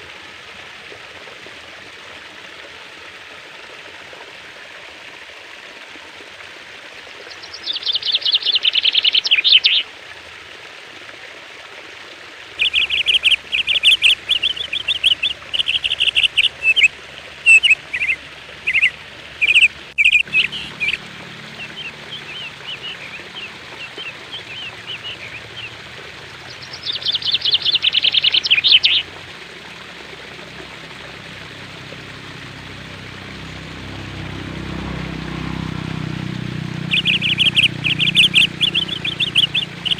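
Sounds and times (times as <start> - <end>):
songbird trills and chirps: 7.3 - 9.8, 12.6 - 21.0, 21.6 - 29.0, 36.8 - 39.9.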